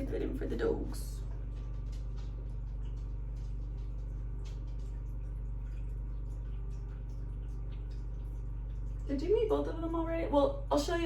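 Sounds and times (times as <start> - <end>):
steady low hum: 0.0 - 11.0
faint clicks and taps: 1.2 - 9.3.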